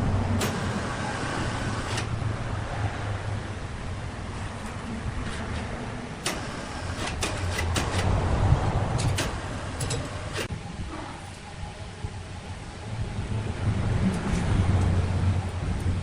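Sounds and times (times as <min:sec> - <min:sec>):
sharp knocks and clicks: 0:06.2 - 0:08.1, 0:09.0 - 0:10.5.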